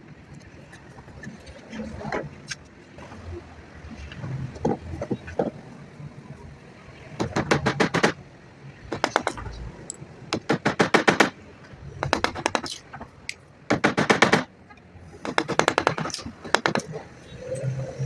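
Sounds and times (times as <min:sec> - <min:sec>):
rapid clicking bursts: 0:07.2 - 0:08.2, 0:08.8 - 0:09.6, 0:10.3 - 0:11.4, 0:12.0 - 0:13.0, 0:13.7 - 0:14.5, 0:15.2 - 0:17.3.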